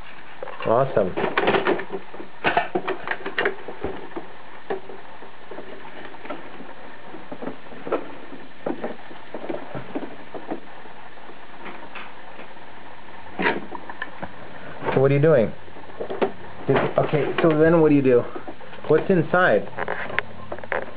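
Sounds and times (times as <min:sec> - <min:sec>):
plastic knocks: 0:05.6 - 0:10.7, 0:16.0 - 0:17.7.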